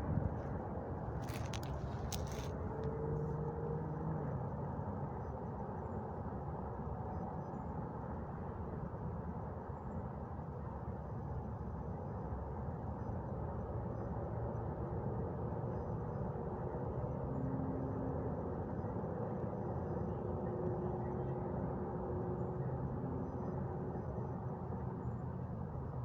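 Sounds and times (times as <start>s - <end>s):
distant city traffic rumble: 0.0s - 4.8s
faint engine hum: 0.0s - 26.0s
wind: 0.0s - 26.0s.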